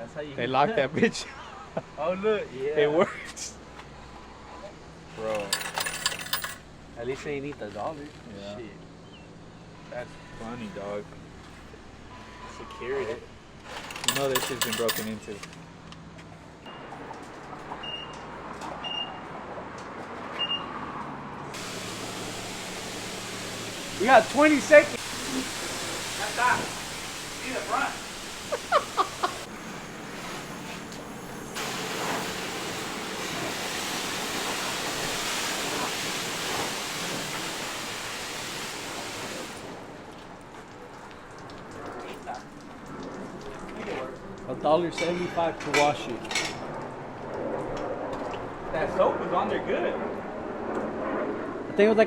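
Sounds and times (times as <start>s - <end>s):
pressure washer spraying water: 21.6s - 39.8s.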